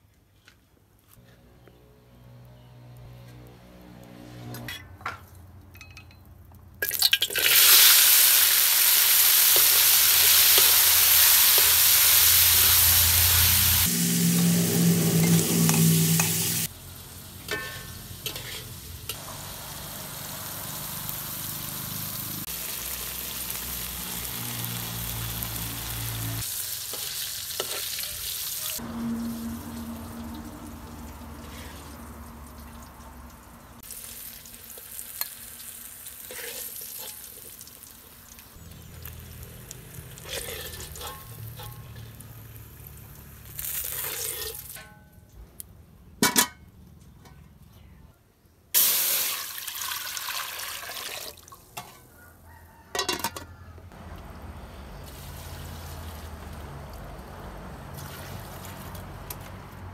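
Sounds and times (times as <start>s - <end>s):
vegetables sizzling in oil: 6.9s - 31.7s, 33.7s - 44.8s, 48.8s - 50.9s, 55.0s - 56.7s.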